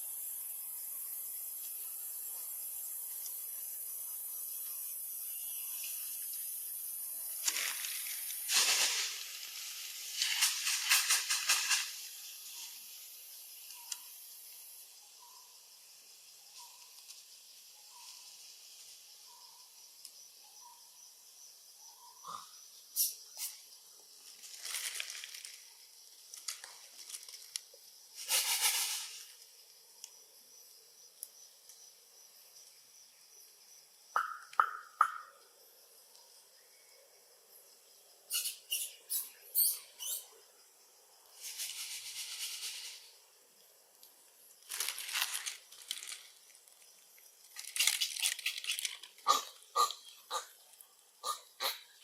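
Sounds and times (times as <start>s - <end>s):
soft chirps: 38.0s - 40.4s.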